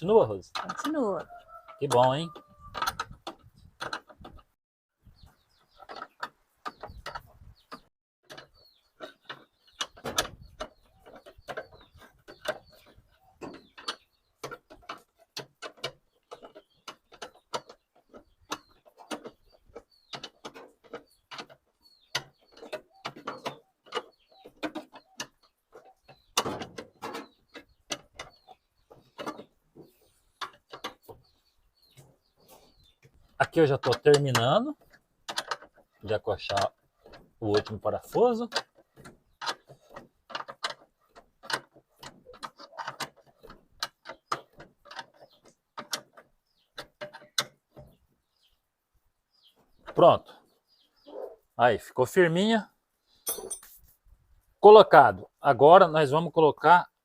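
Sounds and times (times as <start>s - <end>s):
chicks peeping: 5.0s - 15.3s, 16.1s - 35.0s, 42.1s - 51.6s.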